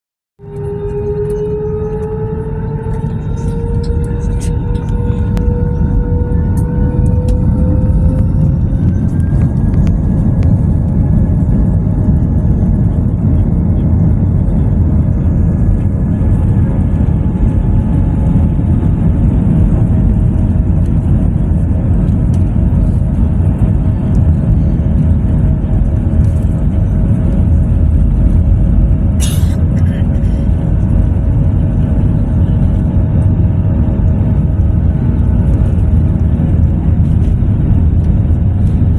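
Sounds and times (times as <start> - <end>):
airliner engines rumbling: 0.4 - 38.9.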